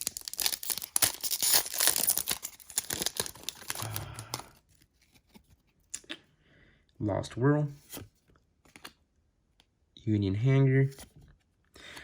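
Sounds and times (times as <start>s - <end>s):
foil pack tearing and crinkling: 0.0s - 4.3s.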